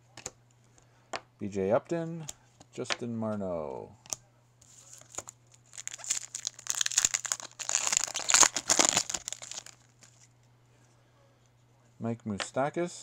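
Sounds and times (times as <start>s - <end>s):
foil wrapper crinkling and tearing: 4.7s - 10.2s.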